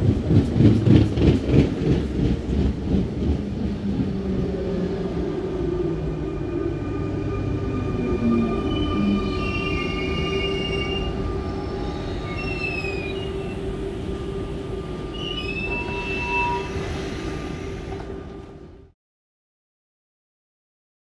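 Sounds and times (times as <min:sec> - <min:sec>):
electric train humming: 0:00.0 - 0:19.0
brake squeals: 0:15.2 - 0:17.8.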